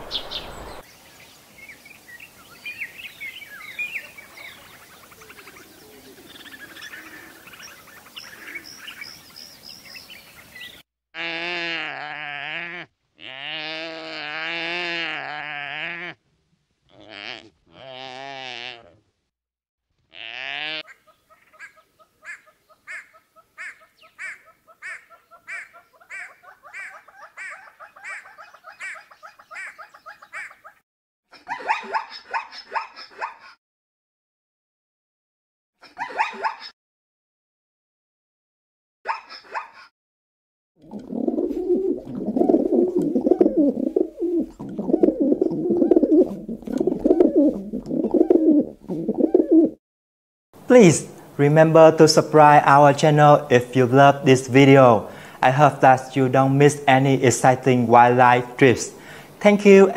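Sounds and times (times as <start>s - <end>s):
pigeons cooing: 4.0s - 9.2s, 40.8s - 49.8s
soft low bird notes: 40.9s - 49.8s.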